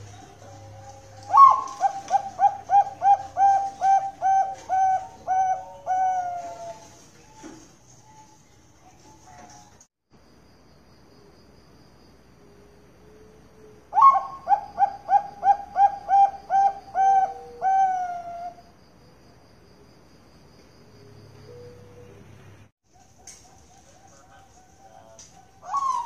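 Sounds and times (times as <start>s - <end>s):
dove cooing song: 0.0s - 7.4s, 13.2s - 18.7s, 23.0s - 26.0s
faint high-pitched ringing: 0.0s - 22.6s.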